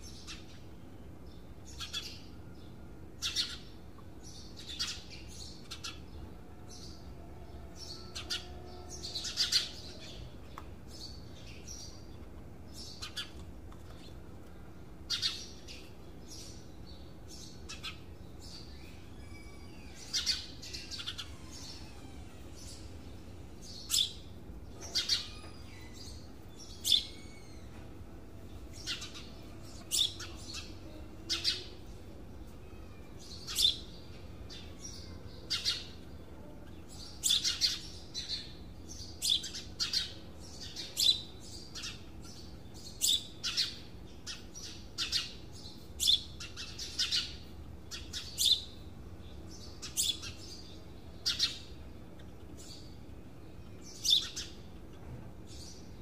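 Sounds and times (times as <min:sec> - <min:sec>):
bird chirping: 0:00.0 - 0:56.0.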